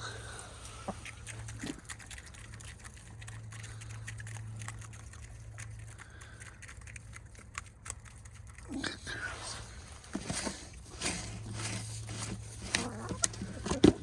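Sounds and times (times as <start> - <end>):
chickens pecking clicks: 0.6 - 8.8, 12.7 - 14.0.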